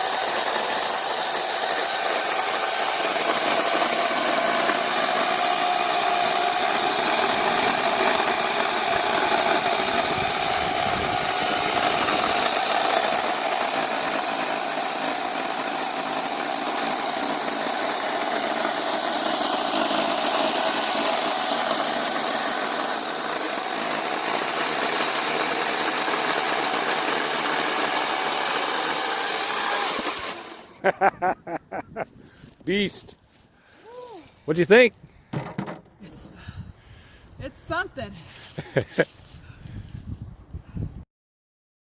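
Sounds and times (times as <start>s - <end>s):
chainsaw cutting firewood: 0.0s - 31.6s, 37.5s - 39.1s
sharp knocks: 35.3s - 36.0s.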